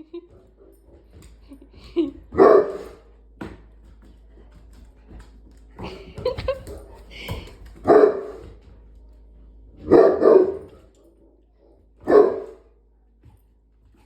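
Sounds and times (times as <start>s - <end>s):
dog barking deeply: 7.9s - 8.4s, 9.8s - 11.4s, 12.0s - 12.7s.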